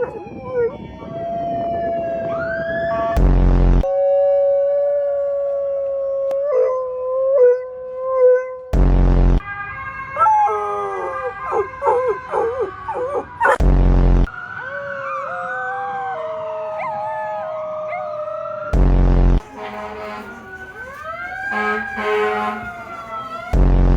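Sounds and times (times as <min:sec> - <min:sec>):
dogs howling: 0:00.0 - 0:01.2, 0:09.5 - 0:13.6, 0:19.4 - 0:23.6.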